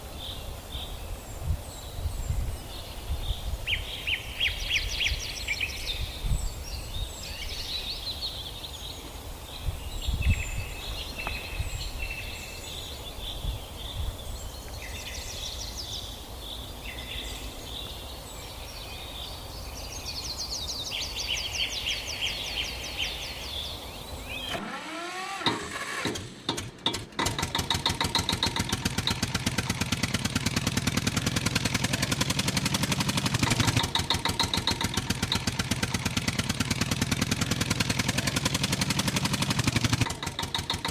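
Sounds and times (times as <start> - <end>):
birds chirping and trilling: 0.0 - 40.9
engine starting and chugging: 24.3 - 40.9.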